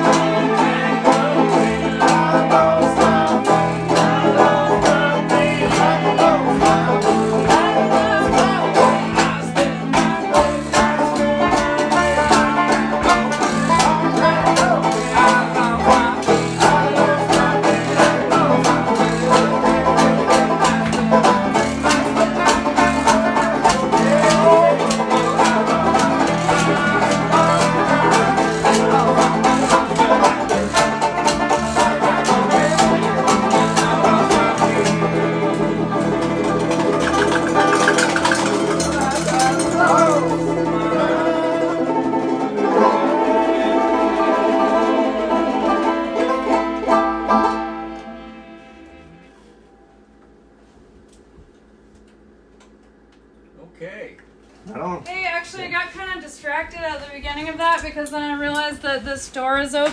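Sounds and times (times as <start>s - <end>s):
banjo picking fast runs: 0.0s - 49.3s
strummed guitar: 0.0s - 50.4s.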